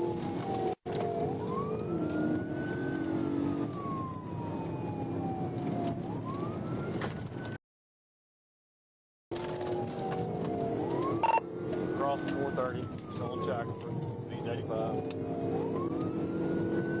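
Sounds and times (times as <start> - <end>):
car engine and road noise: 0.0 - 7.5, 9.4 - 17.0
police siren wailing: 0.0 - 7.6, 9.4 - 17.0.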